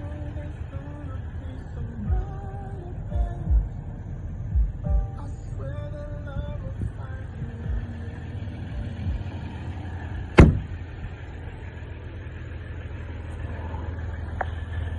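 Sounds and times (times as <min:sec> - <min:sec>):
pickup truck idling: 0:00.0 - 0:14.9
loud thump: 0:10.4 - 0:10.8.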